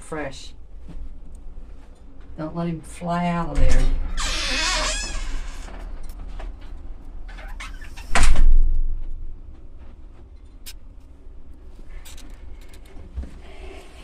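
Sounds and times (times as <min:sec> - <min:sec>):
door opening or shutting: 0:03.6 - 0:06.5, 0:07.3 - 0:08.7.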